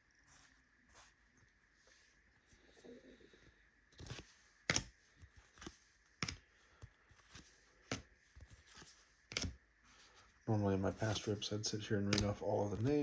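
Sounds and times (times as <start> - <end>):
faint high hum: 0.0 - 13.0
cards flicking: 5.5 - 6.4, 9.3 - 9.6, 12.1 - 12.9.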